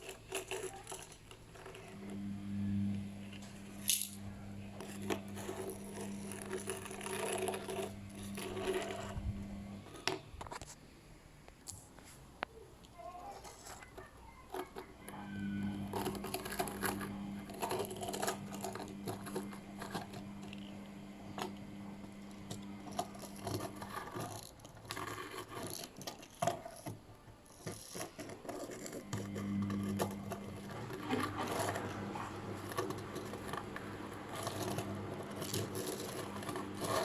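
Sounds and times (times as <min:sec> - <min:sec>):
small motor humming: 0:00.0 - 0:10.5, 0:13.7 - 0:37.0
scraping and clattering: 0:03.2 - 0:10.8, 0:13.0 - 0:37.0.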